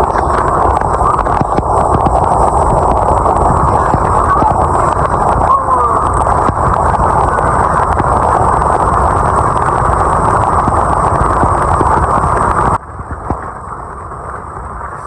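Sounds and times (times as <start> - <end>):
boat outboard engines roaring: 0.0 - 10.2
wind rushing over microphone: 0.0 - 15.0.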